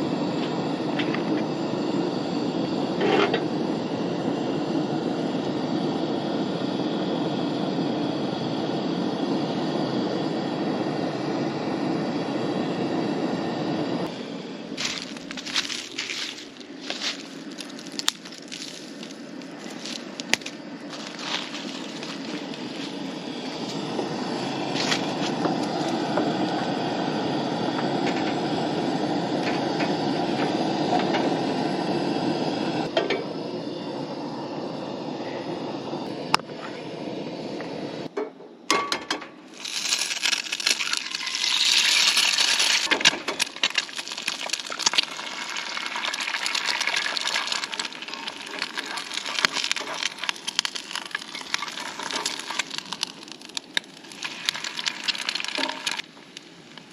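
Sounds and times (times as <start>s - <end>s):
food sizzling in a pan: 39.5s - 56.9s.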